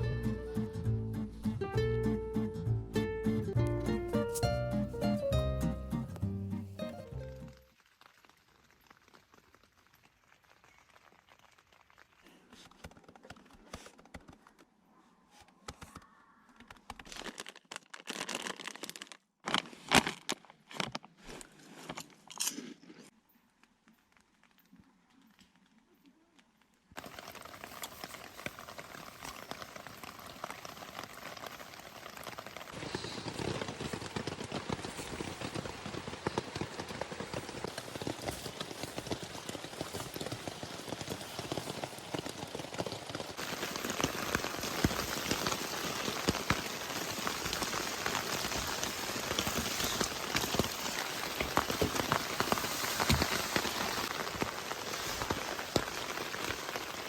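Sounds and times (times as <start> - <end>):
steady rain: 6.8 - 12.2, 27.0 - 57.0
crinkling and crunching handling: 16.6 - 57.0.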